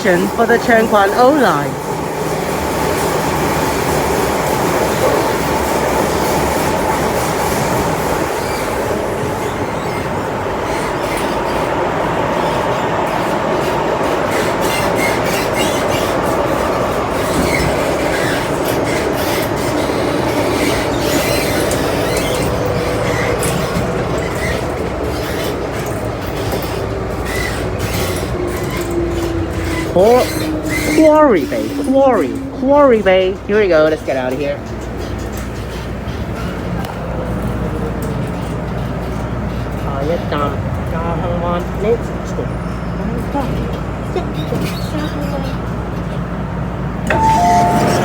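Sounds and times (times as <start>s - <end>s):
electric train whine: 0.0s - 33.5s, 45.6s - 48.0s
train wheels rumbling on rail: 0.0s - 48.0s.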